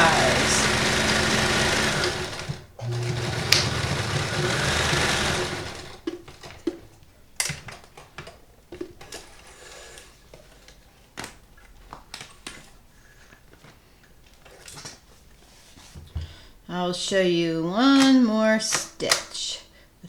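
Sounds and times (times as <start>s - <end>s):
sewing machine stitching: 0.0s - 6.8s.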